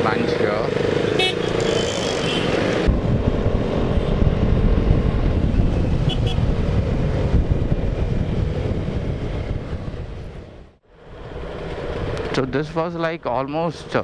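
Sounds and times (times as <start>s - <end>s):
motorcycle engine hum: 0.0s - 12.7s
wind buffeting microphone: 2.7s - 12.6s.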